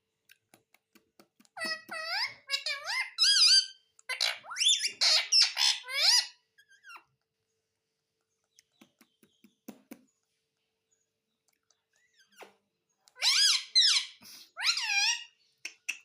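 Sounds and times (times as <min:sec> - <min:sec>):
parrot chirping and squawking: 0:01.6 - 0:07.2, 0:12.0 - 0:16.0.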